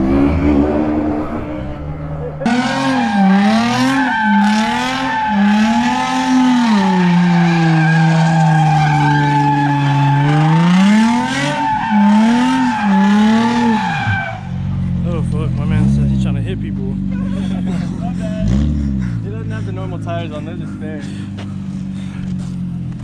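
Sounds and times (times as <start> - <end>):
spinning tyres squealing: 0.0 - 15.0
car engine revving: 0.0 - 23.0.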